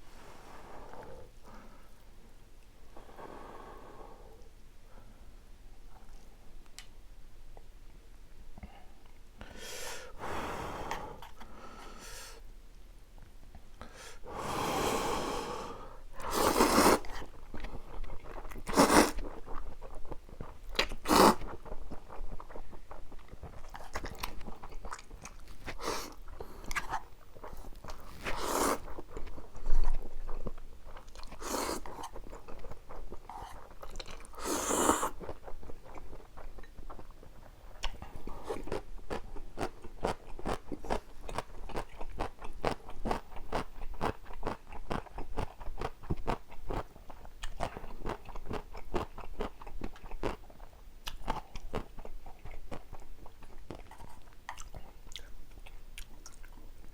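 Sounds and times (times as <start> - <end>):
slurping noodles: 14.5 - 17.3, 18.5 - 19.5, 20.8 - 21.6, 25.4 - 29.6, 31.1 - 32.2, 33.3 - 35.4
wet chewing and mouth clicks: 16.2 - 56.9.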